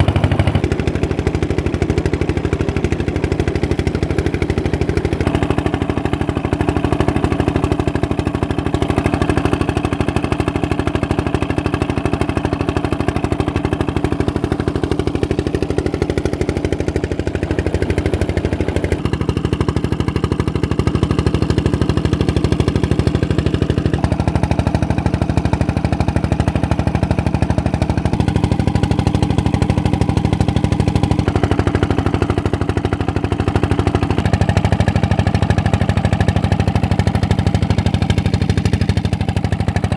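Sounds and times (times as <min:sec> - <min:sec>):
stationary engine running pump: 0:00.0 - 0:39.9.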